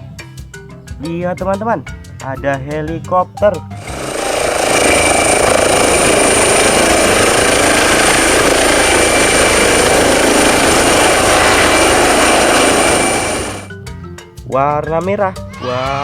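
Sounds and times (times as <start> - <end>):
helicopter rotor and engine: 3.8 - 13.8.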